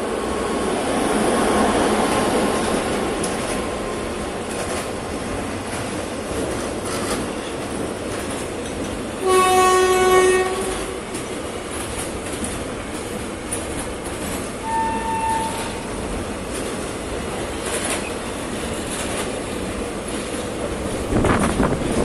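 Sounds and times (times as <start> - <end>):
train wheels rumbling on rail: 0.0 - 22.0
loud train horn: 9.2 - 11.1, 14.6 - 15.9
faint high horn note: 14.6 - 15.8.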